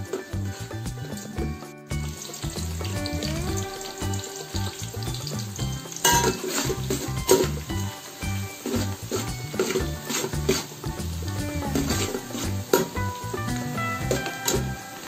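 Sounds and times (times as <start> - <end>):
onions sizzling in hot oil: 0.0 - 15.0
metal spoon stirring in pot: 2.0 - 13.5.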